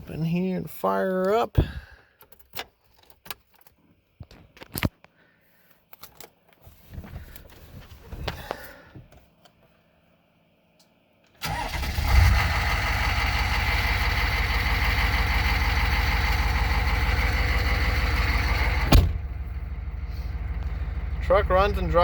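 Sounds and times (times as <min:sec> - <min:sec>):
diesel engine starting and idling: 0:11.3 - 0:22.0.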